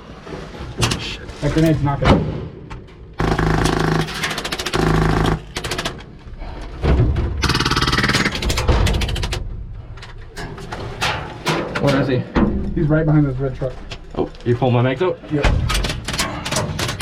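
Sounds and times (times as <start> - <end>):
airsoft gun firing bursts: 3.2 - 6.0, 7.4 - 8.6.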